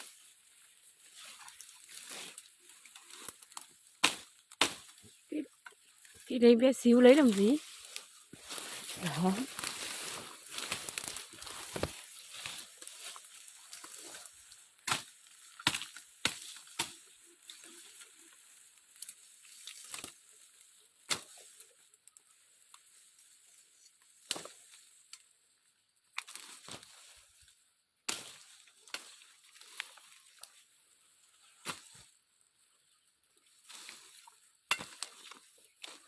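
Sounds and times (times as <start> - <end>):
twigs snapping: 1.2 - 6.3, 7.2 - 23.0, 24.1 - 25.2, 26.1 - 27.2, 34.7 - 36.0.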